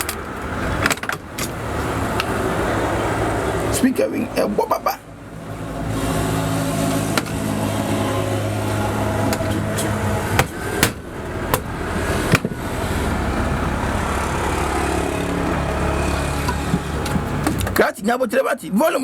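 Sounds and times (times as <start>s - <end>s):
low motor hum: 5.1s - 17.7s
sharp knocks: 9.3s - 12.6s.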